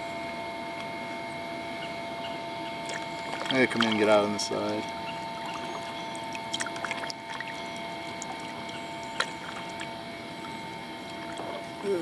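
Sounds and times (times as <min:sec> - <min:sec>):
water splashing around kayak: 0:02.8 - 0:12.0.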